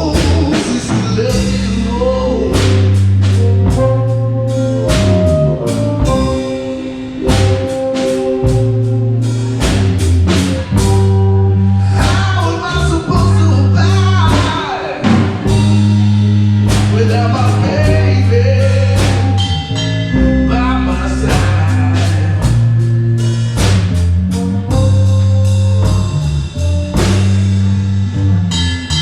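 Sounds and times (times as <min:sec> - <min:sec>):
person singing: 0:00.0 - 0:03.0, 0:11.7 - 0:16.0, 0:16.8 - 0:22.7
bass and guitar chords: 0:00.0 - 0:29.0
drums slow beat: 0:00.0 - 0:29.0
lead guitar sliding notes: 0:00.9 - 0:23.6.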